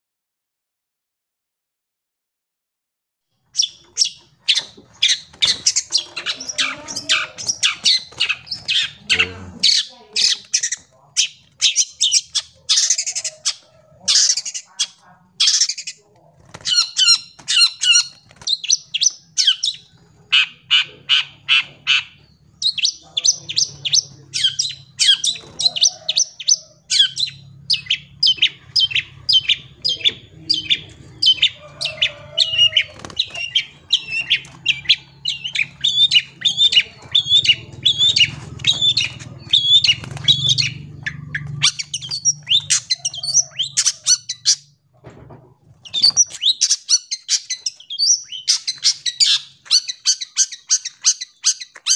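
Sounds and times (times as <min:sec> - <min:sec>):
shrike chattering song: 0:03.5 - 0:44.8
faint low hum: 0:21.2 - 0:46.4.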